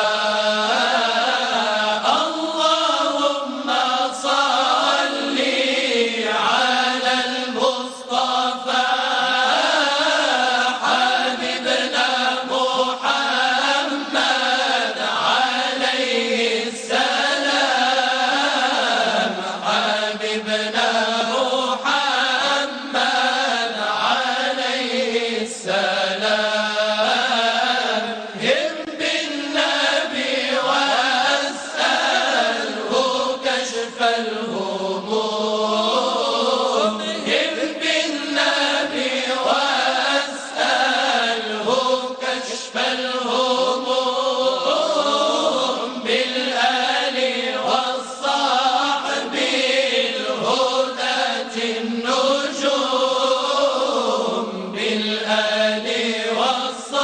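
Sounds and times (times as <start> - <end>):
voices chanting religious song: 0.0 - 57.0.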